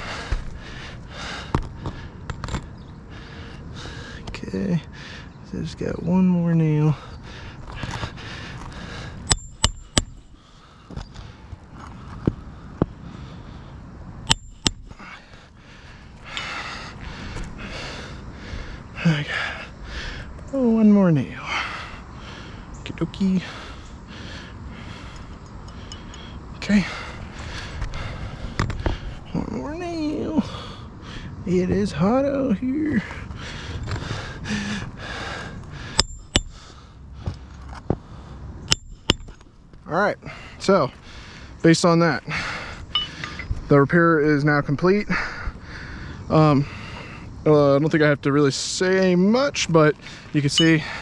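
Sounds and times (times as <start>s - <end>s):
heavy breathing: 0.0s - 5.4s, 6.8s - 20.4s, 21.3s - 29.5s, 30.3s - 31.5s, 32.8s - 39.4s, 40.1s - 43.7s, 44.9s - 47.4s, 49.9s - 51.0s
nail hammered into shingle: 9.2s - 10.2s, 14.3s - 15.0s, 36.0s - 36.7s.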